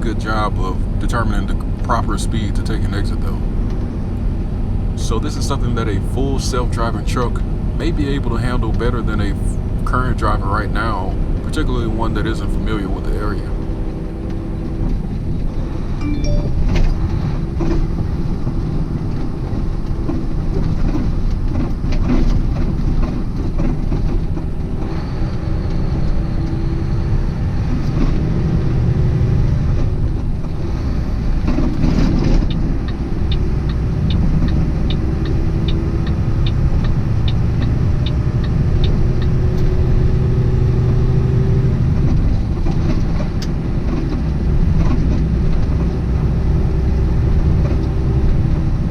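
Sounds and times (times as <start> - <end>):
truck engine and road rumble: 0.0 - 48.9.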